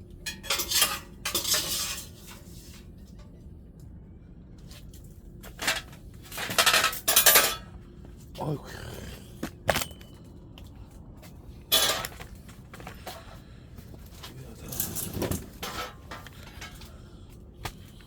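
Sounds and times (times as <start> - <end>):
metal clanking and scraping on stove: 0.3 - 3.2, 5.6 - 7.7, 11.7 - 12.2, 14.6 - 16.9.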